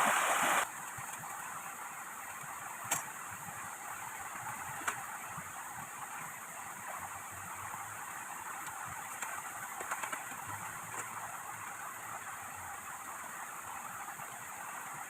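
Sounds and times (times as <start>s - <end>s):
heavy rain hissing: 0.0s - 0.7s.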